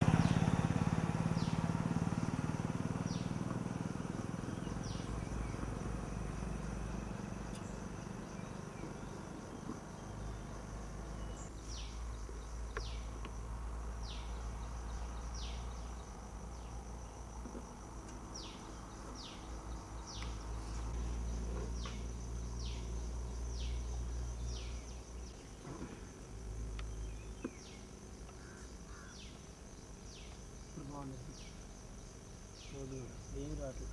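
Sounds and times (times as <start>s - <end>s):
tractor engine running: 0.0s - 15.8s, 17.4s - 27.8s
insects droning: 0.0s - 33.9s.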